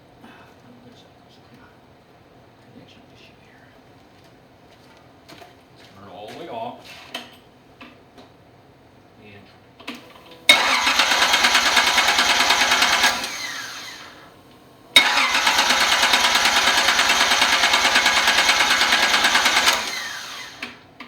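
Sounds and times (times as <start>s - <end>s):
engine cranking on starter motor: 9.8s - 21.0s
starter whining down: 9.9s - 20.9s.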